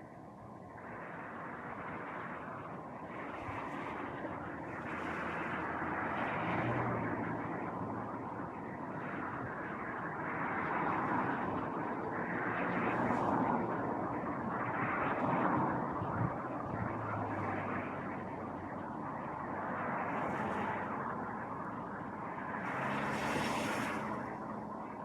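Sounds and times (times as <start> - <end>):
outdoor rushing noise: 22.2 - 25.0.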